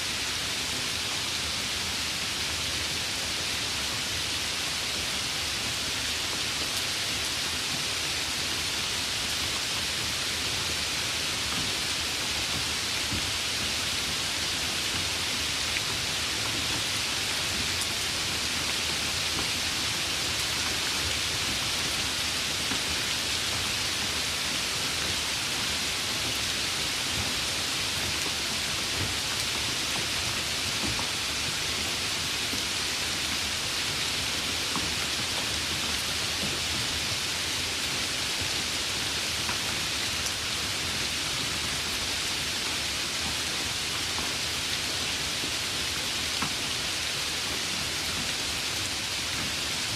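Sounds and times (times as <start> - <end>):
steady rain hiss: 0.0 - 49.9.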